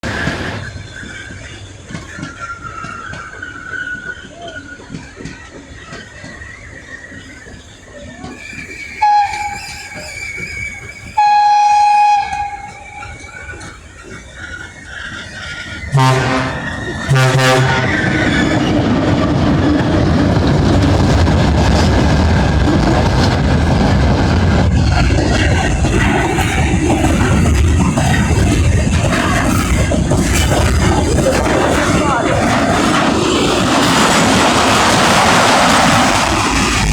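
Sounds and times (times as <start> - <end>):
wheels squealing on rails: 0.0 - 36.9
train wheels knocking on rail joints: 11.2 - 36.2.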